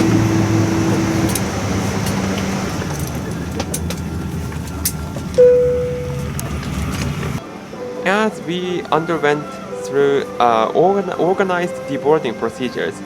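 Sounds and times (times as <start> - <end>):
cabin air hum: 0.0 - 7.4
low humming tones: 0.0 - 7.4
cabin chime: 3.0 - 7.4.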